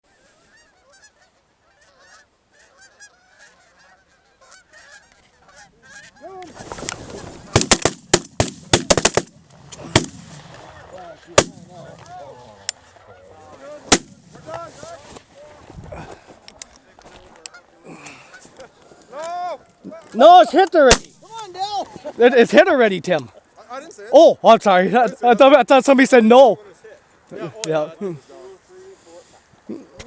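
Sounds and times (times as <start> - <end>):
geese honking: 0.0 - 7.8, 9.8 - 15.2, 17.4 - 19.1
shotgun blasts: 7.5 - 10.4, 11.4 - 11.7, 13.9 - 14.3, 20.9 - 21.2.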